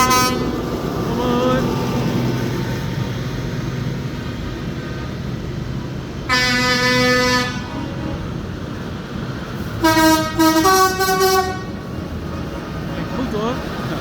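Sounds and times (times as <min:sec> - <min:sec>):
tractor horn blasts: 0:00.0 - 0:00.5, 0:06.3 - 0:08.4, 0:09.8 - 0:13.2
low engine rumble: 0:00.0 - 0:14.0.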